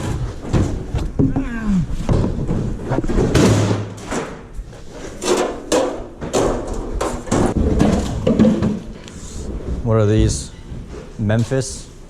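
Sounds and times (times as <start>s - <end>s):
items knocking and clattering: 0.0s - 11.2s.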